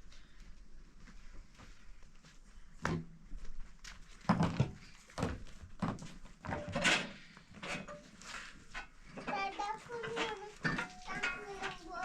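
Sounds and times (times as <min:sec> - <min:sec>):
knocks and clatters: 0:04.2 - 0:12.0.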